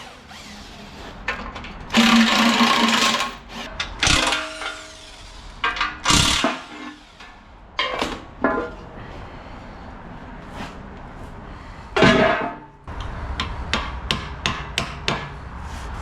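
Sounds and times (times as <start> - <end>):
power tool running: 0.0 - 1.0, 1.9 - 3.4.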